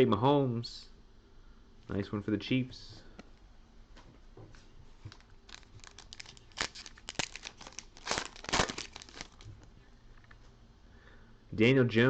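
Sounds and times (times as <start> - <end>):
foil wrapper crinkling and tearing: 5.1 - 9.7.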